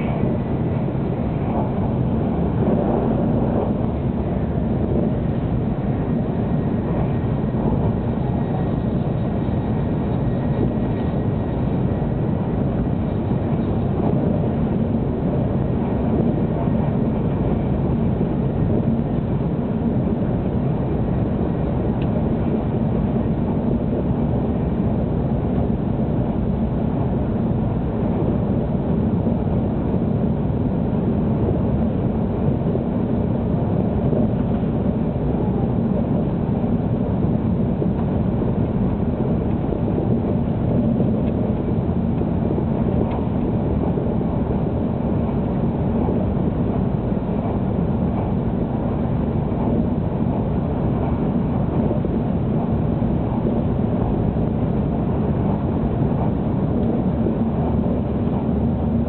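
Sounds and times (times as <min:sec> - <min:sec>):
train running at speed: 0:00.0 - 0:59.0.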